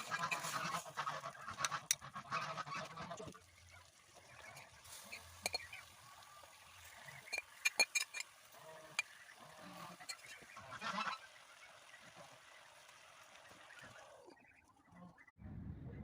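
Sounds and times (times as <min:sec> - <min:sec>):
geese honking: 0:00.0 - 0:05.9, 0:06.9 - 0:15.2.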